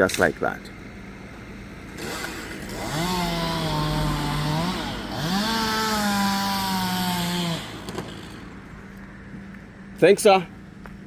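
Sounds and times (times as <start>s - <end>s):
chainsaw revving: 1.8s - 8.6s.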